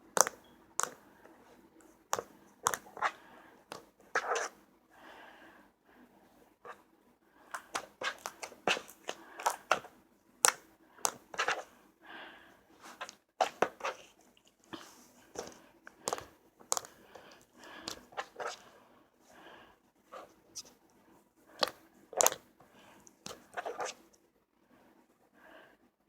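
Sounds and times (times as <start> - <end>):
slime squishing: 0.0 - 1.0, 2.1 - 4.6, 7.5 - 11.7, 12.8 - 18.7, 21.5 - 22.5, 23.1 - 24.0
slime clicking and crackling: 0.1 - 1.0, 21.6 - 22.4.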